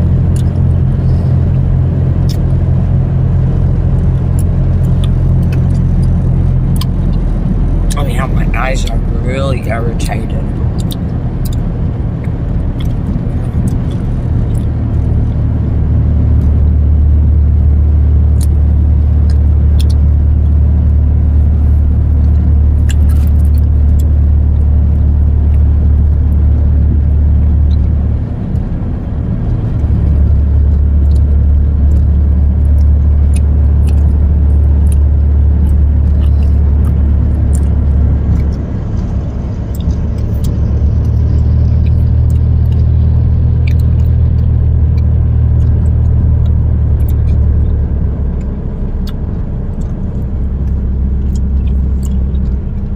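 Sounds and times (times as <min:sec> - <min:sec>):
road and engine rumble in truck cab: 0:00.0 - 0:52.9.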